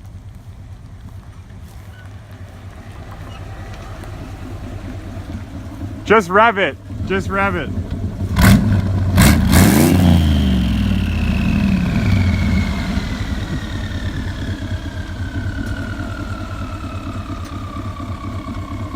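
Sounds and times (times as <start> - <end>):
truck engine revving and idling: 0.0 - 18.9
turbo whine spinning down: 9.8 - 18.9.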